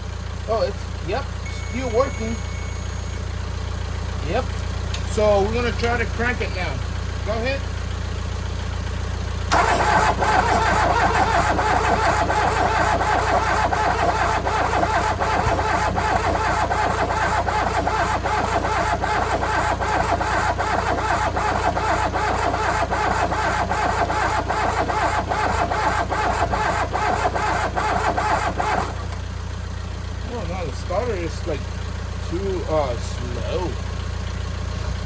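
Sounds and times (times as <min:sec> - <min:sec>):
diesel engine cranking on starter: 0:08.5 - 0:35.0.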